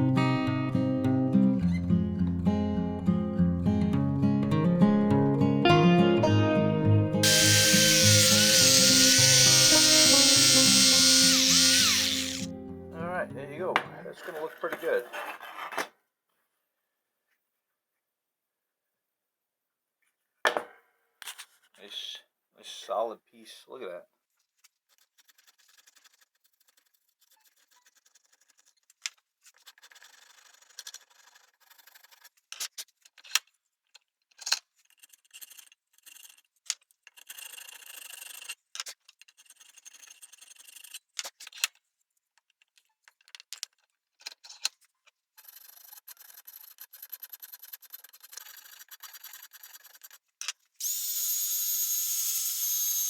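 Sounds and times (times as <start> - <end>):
hand tool scraping wood: 7.2 - 12.5, 45.4 - 50.2
small power tool whining: 7.2 - 12.7, 50.8 - 53.0.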